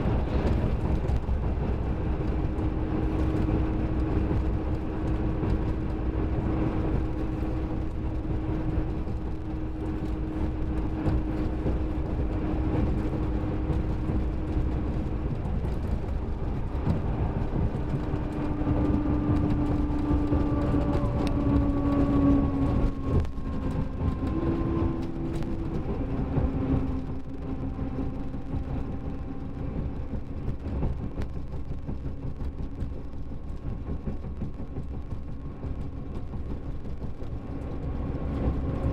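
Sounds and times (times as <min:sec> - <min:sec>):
diesel engine rumble: 0:00.0 - 0:38.9
gearbox whine shifting pitch: 0:02.7 - 0:31.5.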